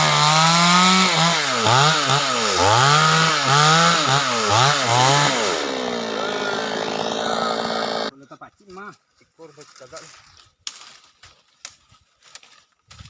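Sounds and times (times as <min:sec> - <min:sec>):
chainsaw cutting wood: 0:00.0 - 0:08.1.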